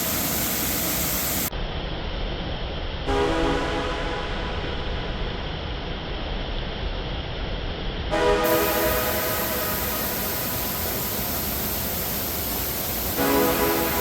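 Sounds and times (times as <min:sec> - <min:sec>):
horn-like chord: 0:03.1 - 0:05.3, 0:08.1 - 0:11.0, 0:13.2 - 0:14.0
waterfall rushing: 0:08.2 - 0:14.0.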